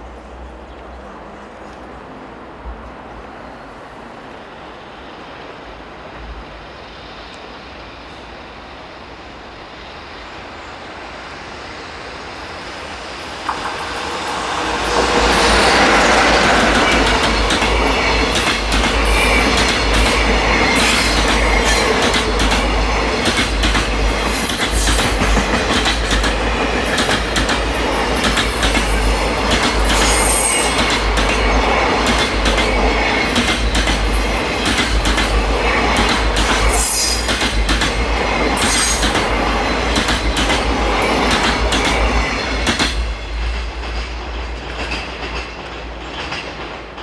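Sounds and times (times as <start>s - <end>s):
heavy low train rumble: 0.0s - 47.0s
train wheels clattering over joints: 13.4s - 47.0s.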